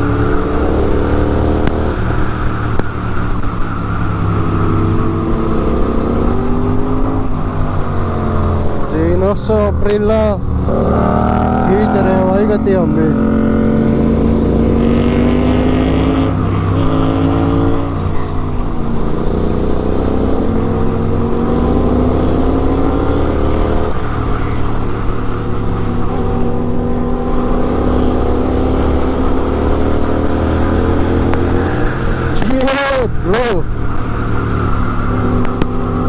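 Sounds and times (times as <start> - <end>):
motorcycle engine accelerating: 0.0 - 36.0.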